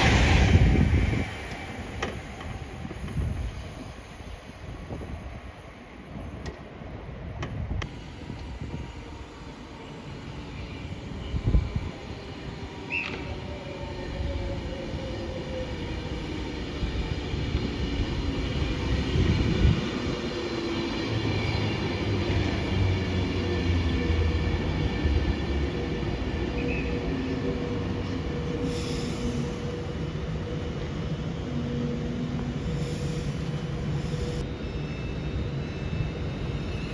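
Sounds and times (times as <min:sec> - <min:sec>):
train running: 0:00.0 - 0:06.7.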